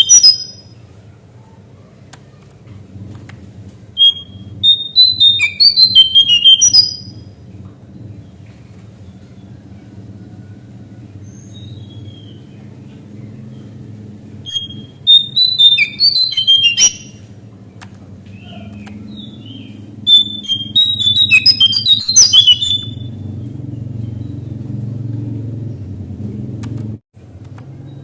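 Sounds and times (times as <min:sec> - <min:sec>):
bird singing high whistled notes: 0:00.0 - 0:00.7, 0:04.0 - 0:07.3, 0:14.4 - 0:17.3, 0:18.5 - 0:23.2.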